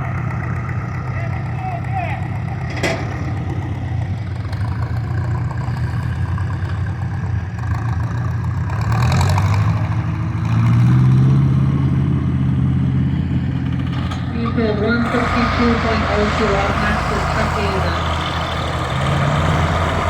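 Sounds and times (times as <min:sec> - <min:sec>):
tractor engine under load: 0:00.0 - 0:20.0.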